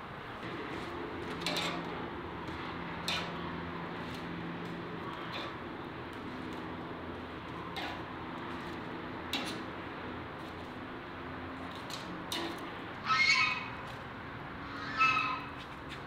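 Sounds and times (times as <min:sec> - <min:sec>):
steady background noise: 0:00.0 - 0:16.0
bird squawking: 0:13.0 - 0:13.8, 0:14.6 - 0:15.6.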